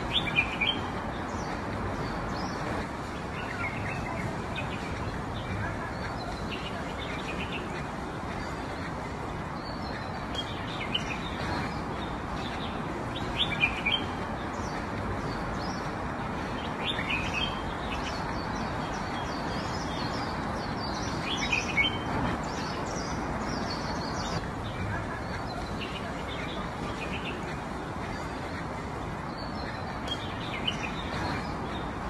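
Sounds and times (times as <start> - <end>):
small birds chirping: 0.0 - 32.0
steady background hiss: 0.0 - 32.0.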